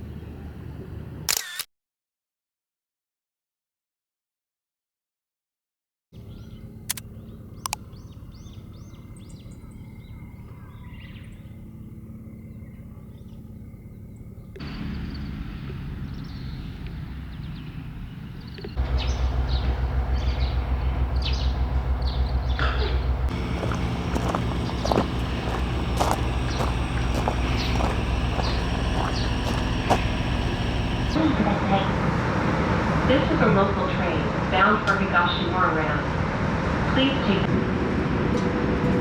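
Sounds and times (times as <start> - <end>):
road vehicle rumbling: 14.0 - 31.2
birds chirping: 16.0 - 31.2
low steady hum: 18.8 - 34.7.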